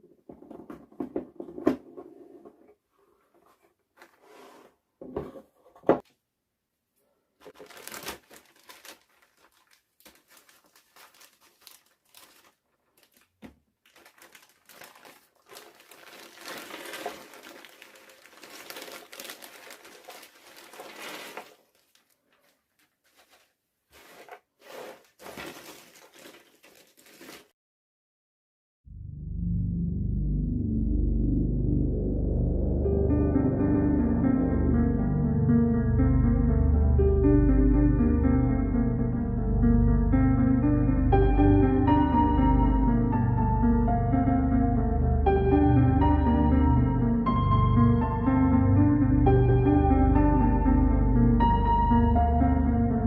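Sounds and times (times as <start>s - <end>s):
jigsaw puzzle packaging rustling: 7.4s - 27.6s.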